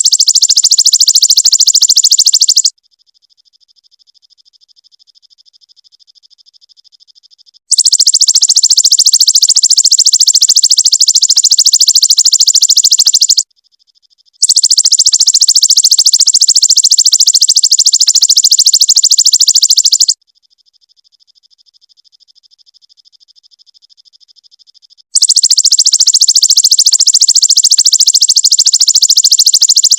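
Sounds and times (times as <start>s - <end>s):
bird buzzing trill: 0.0s - 2.7s, 14.4s - 20.2s.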